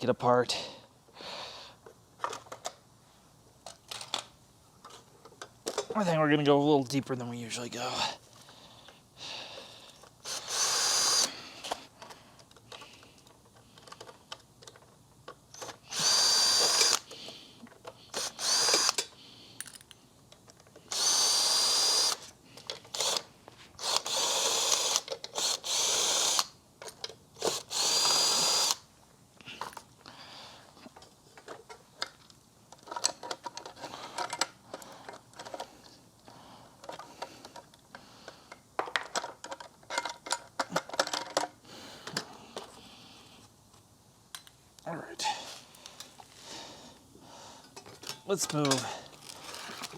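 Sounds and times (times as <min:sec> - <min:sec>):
clicks and rattles of parts: 0:01.8 - 0:02.8, 0:03.6 - 0:06.0, 0:11.6 - 0:15.8, 0:16.6 - 0:21.0, 0:22.0 - 0:25.6, 0:26.4 - 0:28.2, 0:29.5 - 0:30.0, 0:30.6 - 0:42.8, 0:47.6 - 0:49.9
power drill whining: 0:10.2 - 0:11.4, 0:15.6 - 0:17.1, 0:18.1 - 0:19.1, 0:20.9 - 0:22.3, 0:22.9 - 0:26.5, 0:27.4 - 0:28.8.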